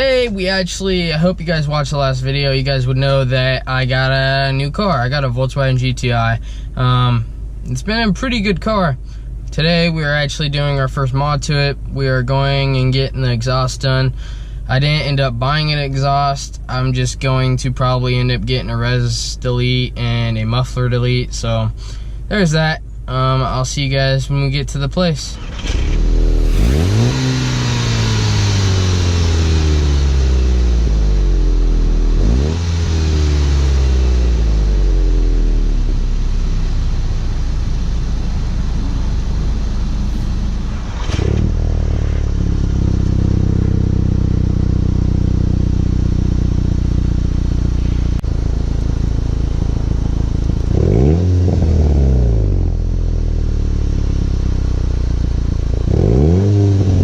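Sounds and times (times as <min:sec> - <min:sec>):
car engine revving: 0:25.2 - 0:57.0.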